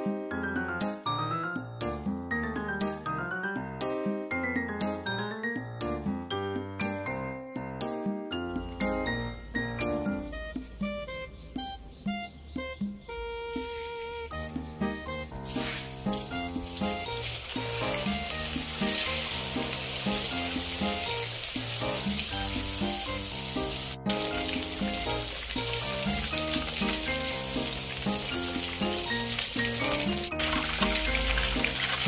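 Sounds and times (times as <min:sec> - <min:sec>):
music with plucked notes: 0:00.0 - 0:32.0
tofu sizzling in hot oil: 0:15.4 - 0:32.0.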